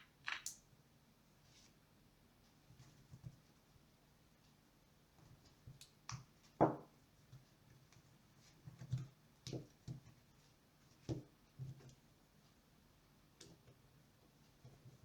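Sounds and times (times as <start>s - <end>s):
small hard objects clicking: 0.0s - 0.6s.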